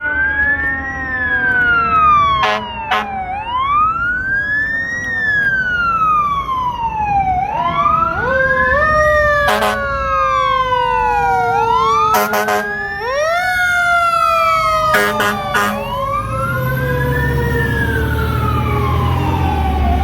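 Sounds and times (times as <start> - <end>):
fire engine siren wailing: 0.0 - 20.0
lower siren tone: 0.0 - 20.0
short horn blasts: 2.4 - 3.1, 9.5 - 9.9, 12.2 - 12.7, 14.9 - 15.9.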